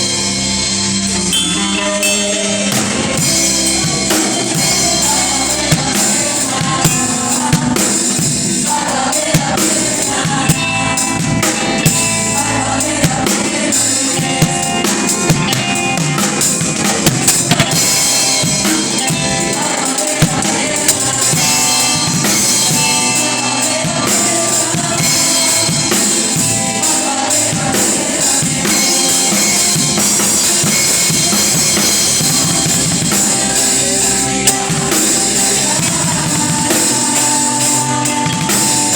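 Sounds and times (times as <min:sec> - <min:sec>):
live band music: 0:00.0 - 0:38.9.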